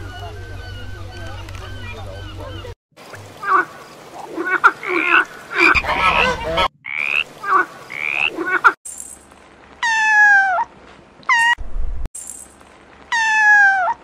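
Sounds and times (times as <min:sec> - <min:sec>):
frog croaking: 0:04.4 - 0:08.6
kitten meowing: 0:13.1 - 0:14.0.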